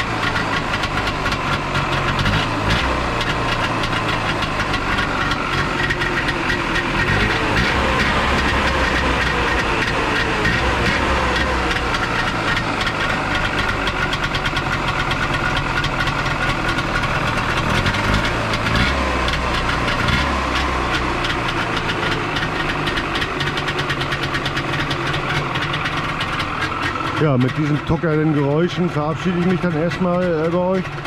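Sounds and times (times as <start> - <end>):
two-stroke engine chugging: 0.0 - 31.0
man talking: 27.2 - 30.9.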